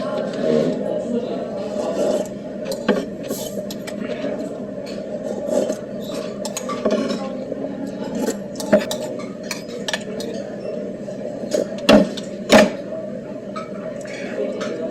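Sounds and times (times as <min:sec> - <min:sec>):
cutlery clinking against bowl: 0:01.8 - 0:07.3, 0:07.9 - 0:10.5.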